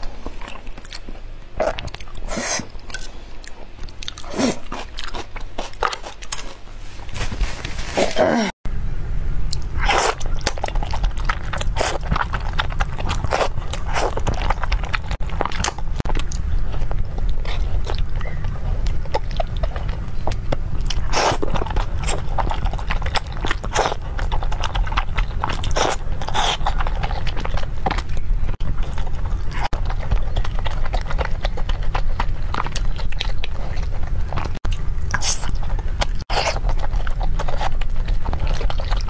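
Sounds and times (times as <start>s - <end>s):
person chewing and smacking noodles: 0.0s - 6.7s, 9.5s - 39.0s
steady low hum: 0.0s - 39.0s.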